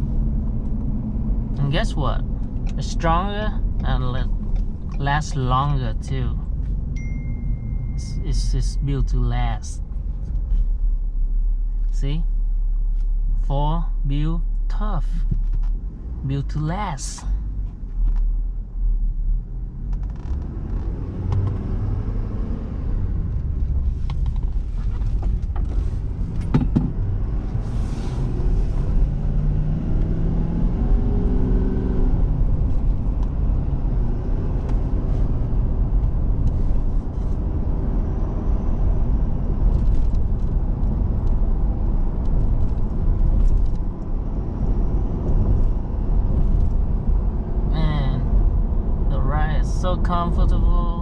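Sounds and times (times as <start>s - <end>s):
diesel engine and tyres rumbling: 0.0s - 51.0s
cab clicks and knocks: 26.4s - 27.0s.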